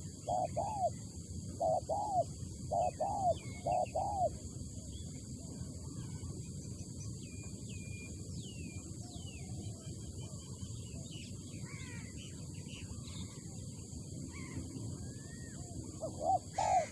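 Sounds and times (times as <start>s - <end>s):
dove cooing: 0.0s - 4.4s, 14.3s - 16.9s
small birds whistling: 0.0s - 16.9s.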